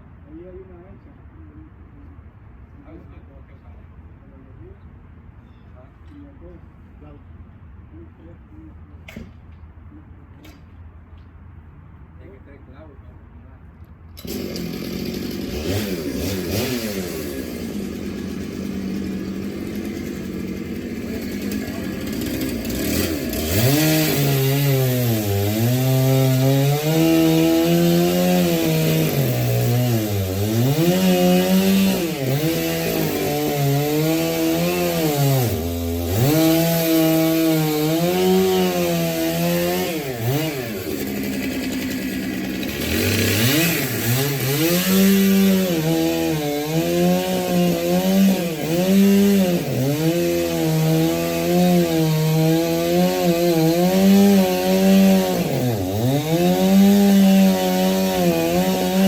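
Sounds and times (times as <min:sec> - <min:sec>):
chainsaw cutting wood: 0:14.2 - 0:59.0.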